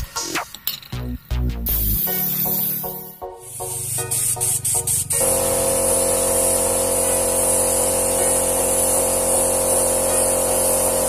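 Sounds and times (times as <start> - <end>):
paint spray gun hissing: 1.7 - 11.0
compressor humming: 2.4 - 11.0.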